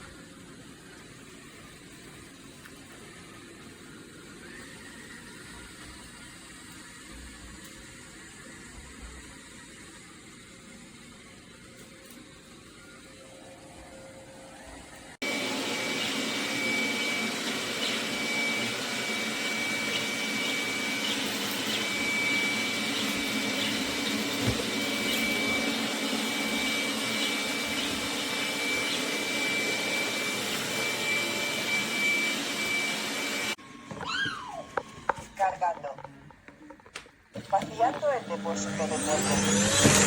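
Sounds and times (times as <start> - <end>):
robot vacuum suction motor: 15.2 - 36.0, 37.4 - 40.0.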